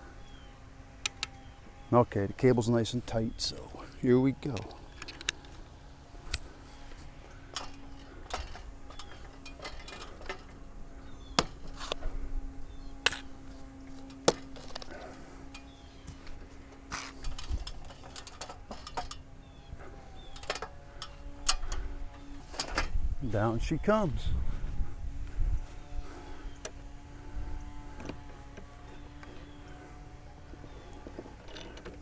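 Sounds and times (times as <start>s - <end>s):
steady low hum: 0.0s - 32.0s
metal clicks from winch and pole: 1.0s - 1.4s, 4.4s - 5.6s, 7.4s - 10.6s, 15.5s - 19.3s, 20.1s - 23.0s, 30.9s - 32.0s.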